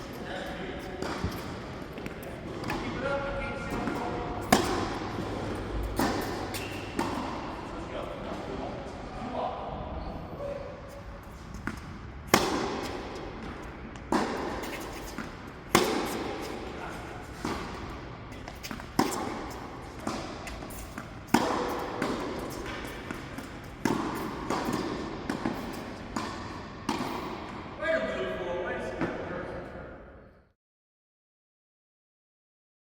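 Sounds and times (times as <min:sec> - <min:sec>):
tennis balls struck with rackets: 0:00.5 - 0:07.6, 0:11.3 - 0:27.6.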